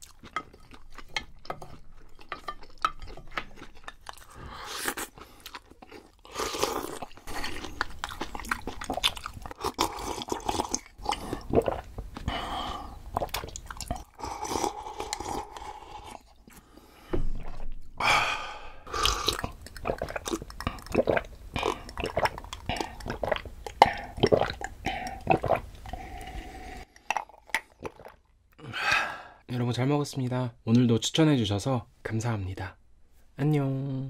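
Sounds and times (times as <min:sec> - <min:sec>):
close chewing: 0:00.0 - 0:12.3, 0:18.9 - 0:26.0
wet mouth clicks: 0:18.9 - 0:26.0.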